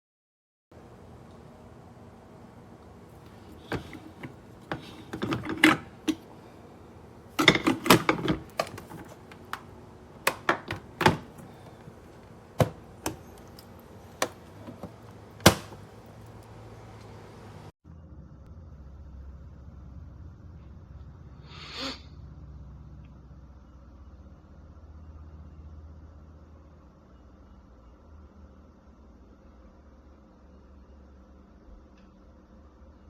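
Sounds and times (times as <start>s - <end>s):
hard objects clicking and clacking: 3.2s - 6.5s, 7.3s - 16.5s.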